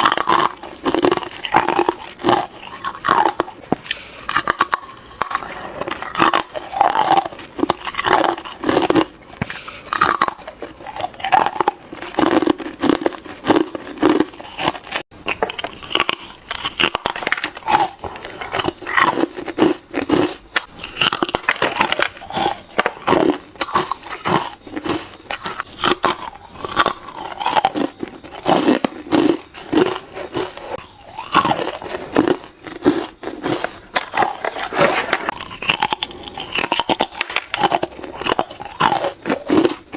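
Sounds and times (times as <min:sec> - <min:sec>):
person biting into hard ice: 0:00.0 - 0:39.9.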